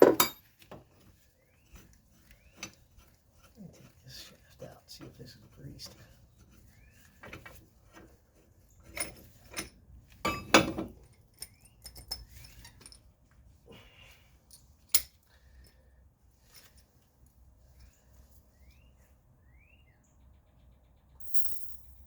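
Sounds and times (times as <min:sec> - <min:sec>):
metal tools clinking: 0:00.0 - 0:00.6, 0:08.8 - 0:13.1, 0:14.5 - 0:15.3.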